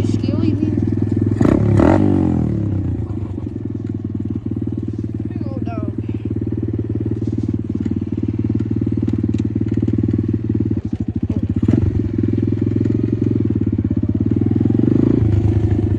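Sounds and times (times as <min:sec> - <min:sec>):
dirt bike engine running and revving: 0:00.0 - 0:15.9.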